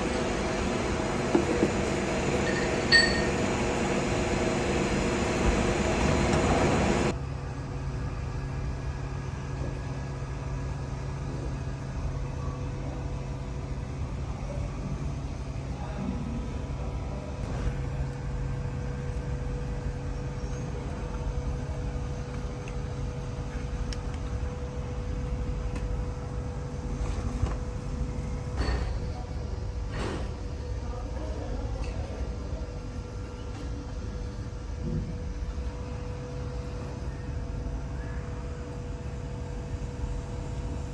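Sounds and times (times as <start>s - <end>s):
faint steady whine: 0.0s - 7.2s
workshop machinery humming: 0.0s - 7.2s, 33.0s - 40.9s.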